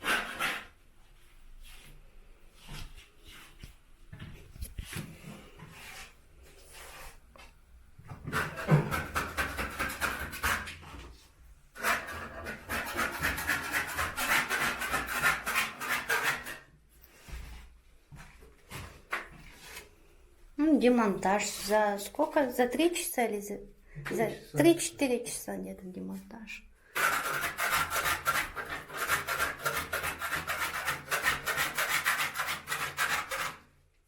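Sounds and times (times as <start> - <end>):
hand tool scraping wall: 0.0 - 0.8, 8.1 - 11.2, 11.8 - 17.6, 26.9 - 33.7.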